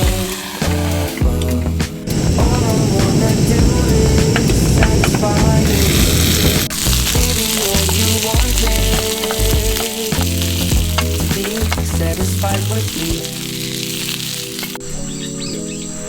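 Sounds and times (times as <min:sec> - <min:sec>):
food sizzling in a pan: 0:00.0 - 0:01.2, 0:05.7 - 0:14.8
instrumental music with bass: 0:00.0 - 0:13.3.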